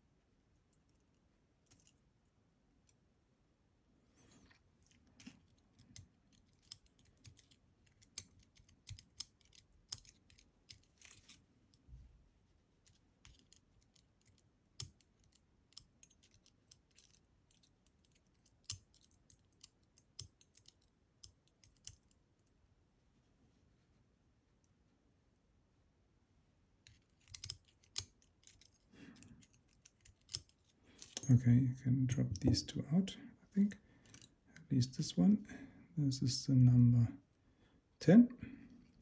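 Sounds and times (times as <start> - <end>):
small metal clicks and taps: 5.2 - 11.4, 12.8 - 22.2, 26.9 - 31.4.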